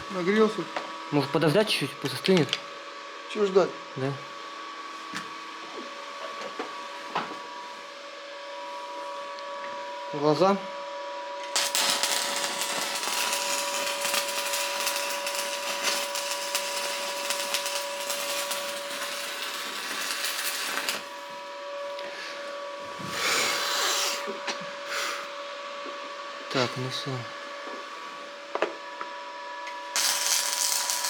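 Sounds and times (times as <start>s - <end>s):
electric welding crackling hiss: 11.4s - 21.5s, 29.9s - 31.0s.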